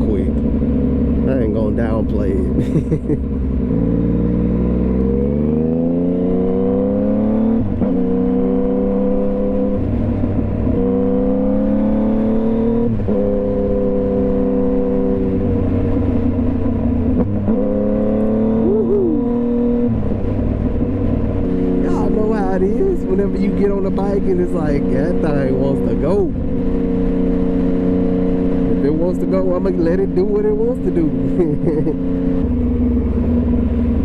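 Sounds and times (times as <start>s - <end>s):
motorcycle engine accelerating through gears: 0.0s - 34.0s.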